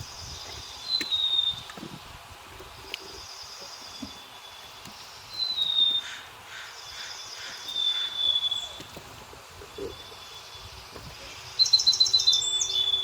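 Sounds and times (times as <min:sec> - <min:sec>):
buzzy high bird calls: 0:03.1 - 0:08.8, 0:09.8 - 0:13.0.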